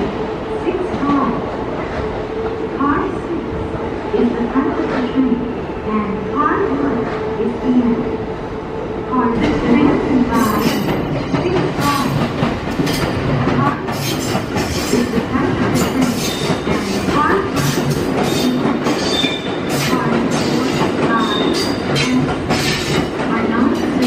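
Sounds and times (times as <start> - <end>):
train running rumble: 9.0 - 24.0.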